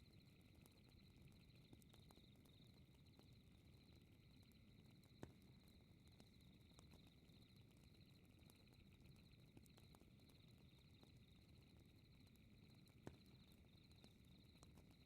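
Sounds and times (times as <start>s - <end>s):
pulsing night insect chirring: 0.0s - 15.0s
fireplace crackling and popping: 0.3s - 15.0s.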